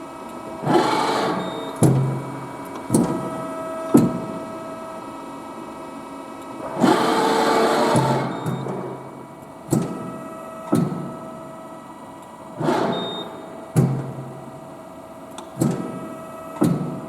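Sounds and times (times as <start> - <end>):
hydraulic pump hum: 0.5 - 5.1, 6.6 - 17.0
machine clunks: 7.7 - 11.6, 12.5 - 14.7, 15.4 - 17.0.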